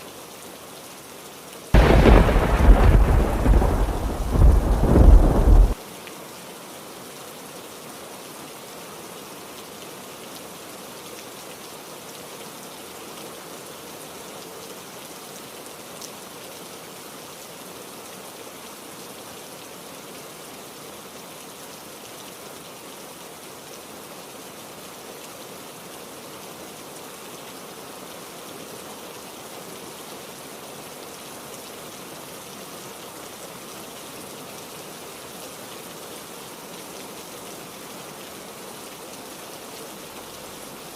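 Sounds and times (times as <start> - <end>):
heavy rain falling: 1.7 - 5.8.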